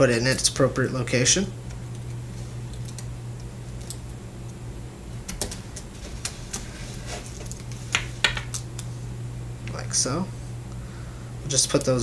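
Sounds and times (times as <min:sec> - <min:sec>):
light clicks of small parts: 0:01.7 - 0:04.6.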